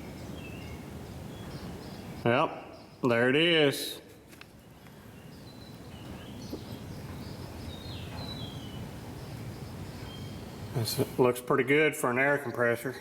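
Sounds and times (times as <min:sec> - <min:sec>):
low steady background noise: 0:00.0 - 0:13.0
faint bird chirps: 0:04.6 - 0:11.1.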